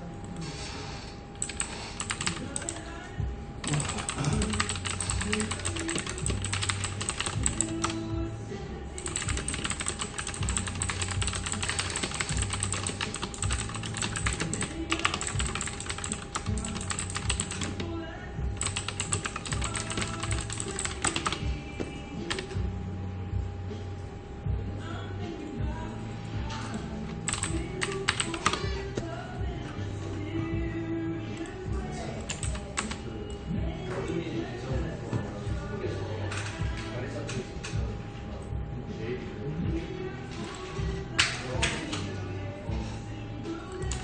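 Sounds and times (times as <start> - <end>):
low background hum: 0.0 - 44.0
typing on computer keyboard: 1.4 - 2.8, 3.6 - 8.0, 9.0 - 17.8, 18.6 - 21.5, 22.3 - 22.6, 27.3 - 28.6, 32.2 - 33.0, 43.8 - 44.0.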